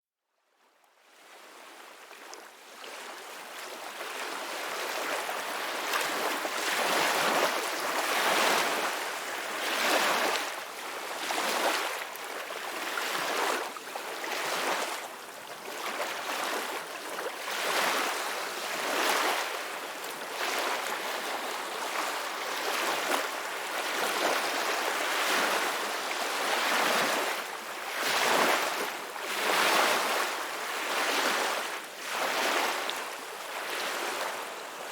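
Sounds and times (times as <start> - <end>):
ocean waves breaking: 4.3 - 15.0, 15.8 - 33.0.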